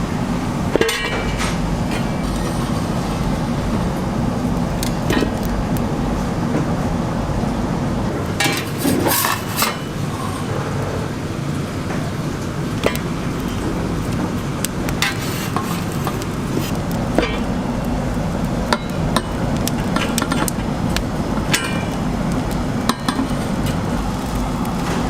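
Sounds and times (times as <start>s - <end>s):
low background rumble: 0.0s - 25.0s
kitchen tools clicking and knocking: 8.4s - 10.0s.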